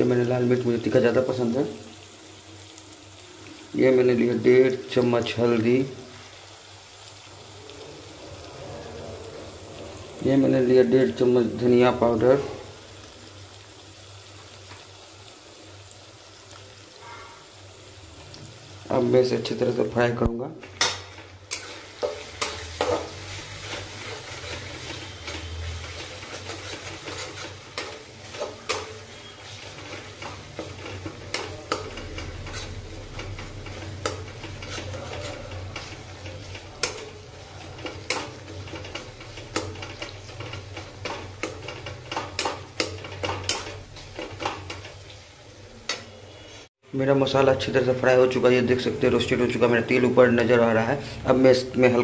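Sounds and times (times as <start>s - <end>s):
masala sizzling in oil: 0.0s - 52.0s
steel spatula scraping a pan: 21.1s - 45.1s.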